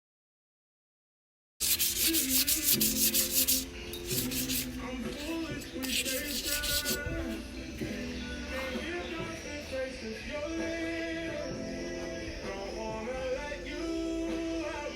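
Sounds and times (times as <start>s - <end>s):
hand sanding strokes: 1.6s - 7.1s
background music: 1.6s - 14.9s.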